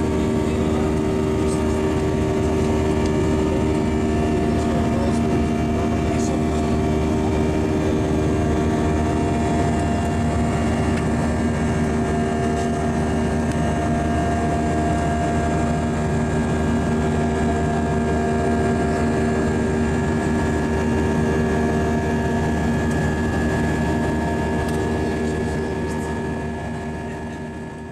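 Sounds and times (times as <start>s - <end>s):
jet engine cabin roar: 0.0s - 27.9s.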